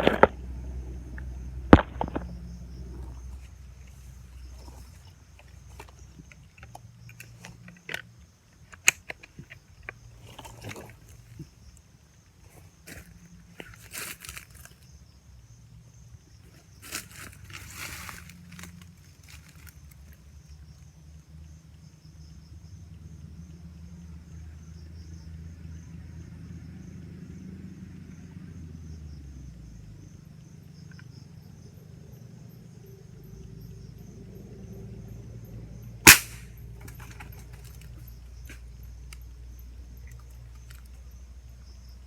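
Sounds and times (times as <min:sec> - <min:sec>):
sharp gunshot: 0:36.1 - 0:36.5.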